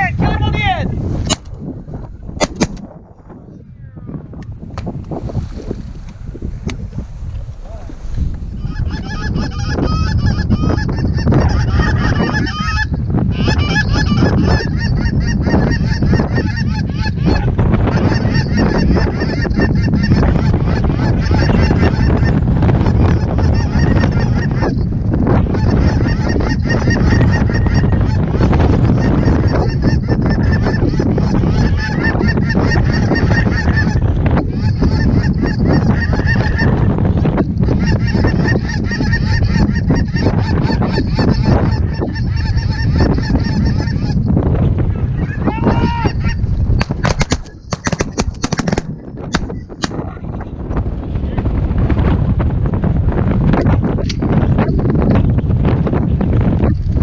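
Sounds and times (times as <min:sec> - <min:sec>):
wind noise on microphone: 0:00.0 - 0:57.0
geese honking: 0:08.5 - 0:24.8, 0:25.4 - 0:44.2.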